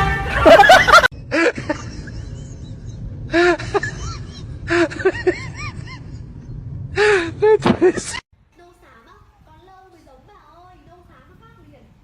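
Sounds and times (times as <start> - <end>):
steady low rumble: 0.2 - 8.5.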